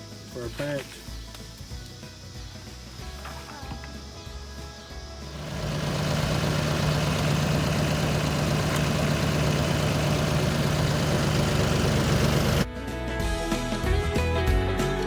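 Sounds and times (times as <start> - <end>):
engine idling: 5.2 - 12.6.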